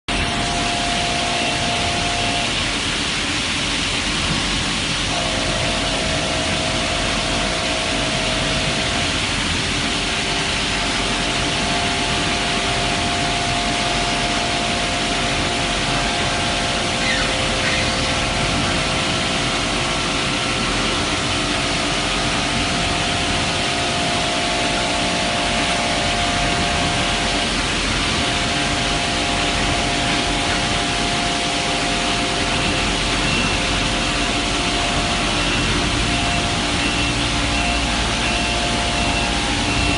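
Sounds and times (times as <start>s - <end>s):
milling machine cutting hiss: 0.1s - 39.9s
held machine tones: 9.8s - 39.9s.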